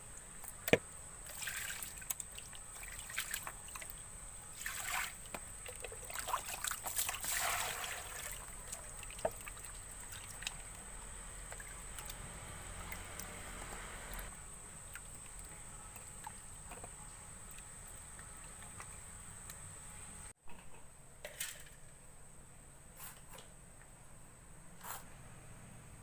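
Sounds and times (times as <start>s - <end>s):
water trickling and splashing: 1.2s - 19.4s.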